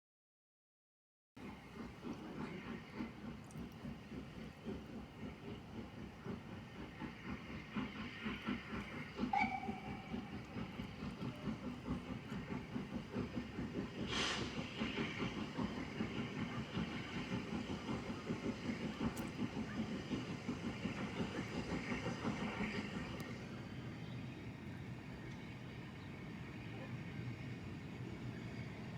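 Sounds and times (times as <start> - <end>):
train rhythmic beat: 1.4 - 23.3
short hissy burst: 13.8 - 15.2.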